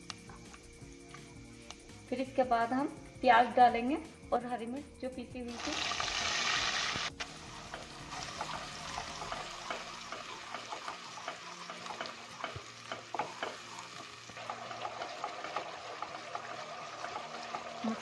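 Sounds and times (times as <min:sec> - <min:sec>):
paste sizzling in hot oil: 0:05.5 - 0:18.0.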